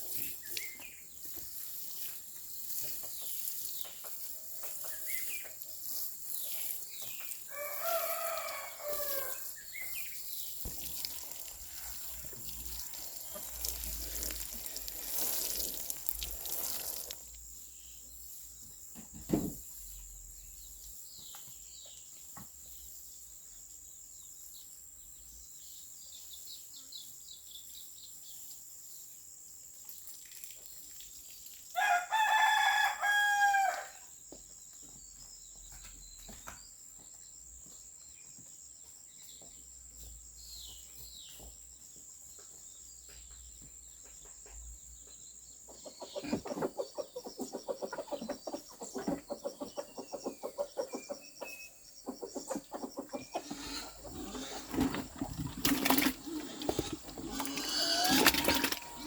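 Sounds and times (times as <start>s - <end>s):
small birds chirping: 0.0s - 31.6s, 34.3s - 59.0s
rooster crowing: 7.5s - 9.4s, 31.8s - 34.0s.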